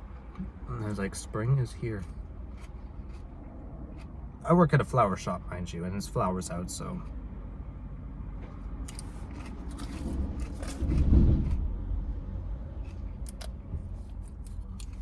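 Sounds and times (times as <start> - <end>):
low hum inside car: 0.0 - 15.0
lettuce being chewed: 2.0 - 4.2, 8.9 - 11.6, 14.0 - 15.0
loud low rumble: 9.9 - 12.8.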